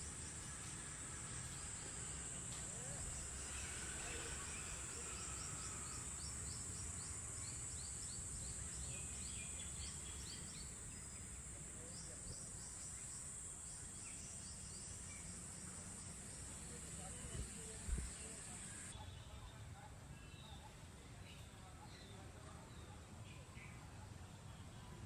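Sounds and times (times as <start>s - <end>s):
high-pitched insect drone: 0.0s - 18.9s.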